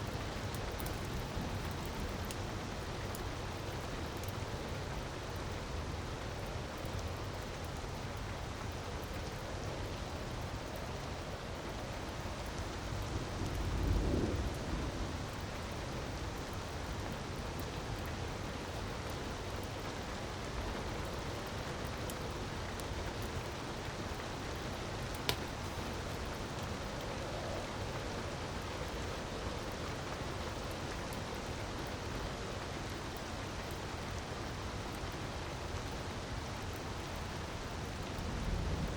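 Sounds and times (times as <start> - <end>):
wood fire crackling: 0.0 - 38.9
fire pop: 25.2 - 25.7.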